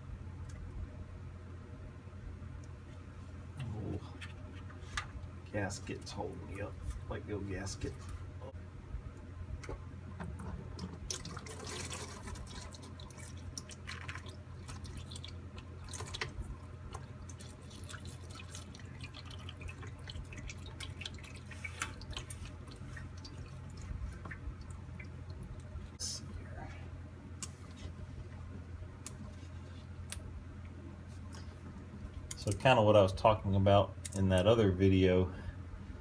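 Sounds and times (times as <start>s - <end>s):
steady low hum: 0.0s - 36.0s
fluid dripping and trickling: 10.7s - 26.0s.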